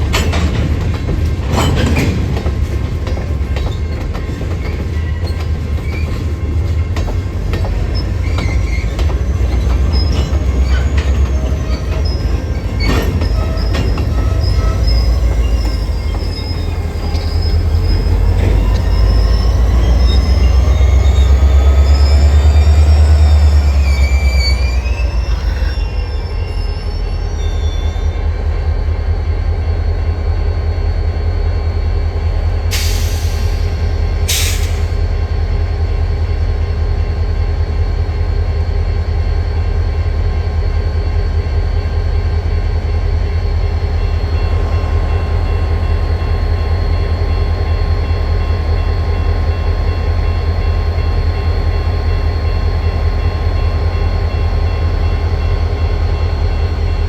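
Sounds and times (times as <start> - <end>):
train wheel squeal: 0.0 - 35.0
train rumbling past: 0.0 - 57.0
short hisses: 32.7 - 35.0.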